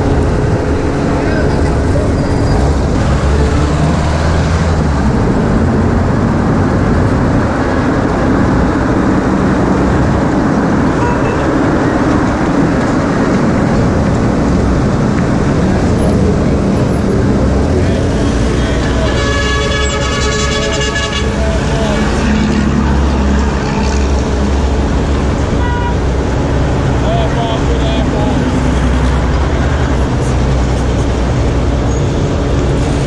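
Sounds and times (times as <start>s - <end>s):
bus engine running: 0.0s - 33.0s
road noise: 0.0s - 33.0s
vehicle horn: 11.0s - 11.5s, 18.6s - 21.7s, 25.6s - 26.1s.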